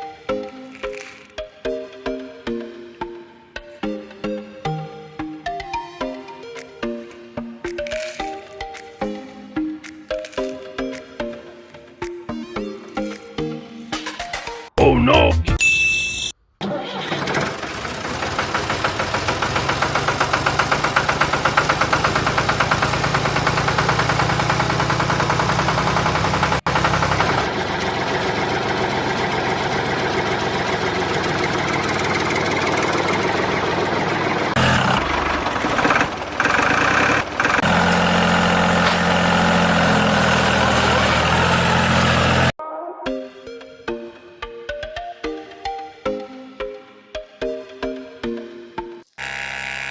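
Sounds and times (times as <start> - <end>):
machine motor pulsing: 17.2 - 42.6, 49.2 - 49.9.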